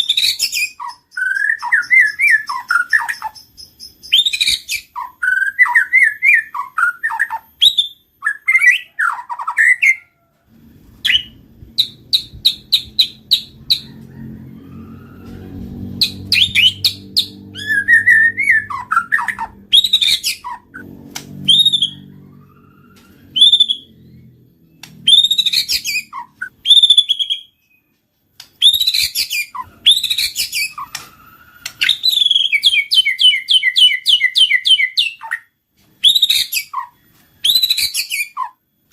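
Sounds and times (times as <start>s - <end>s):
bird singing whistles and trills: 0.0s - 10.1s, 11.0s - 13.9s, 16.0s - 20.8s, 21.4s - 28.0s, 28.6s - 38.6s
low rumble: 10.5s - 25.3s.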